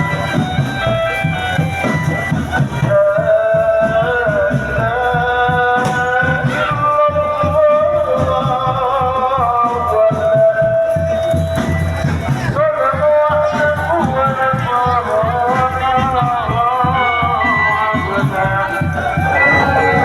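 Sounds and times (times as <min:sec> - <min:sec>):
shaker-like percussion: 0:00.0 - 0:20.0
steady drum beat: 0:00.0 - 0:20.0
person singing gliding notes: 0:17.0 - 0:20.0.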